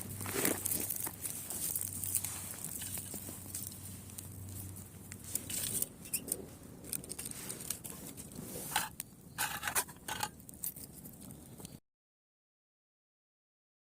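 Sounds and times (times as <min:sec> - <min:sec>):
campfire twigs crackling: 0:00.0 - 0:11.8.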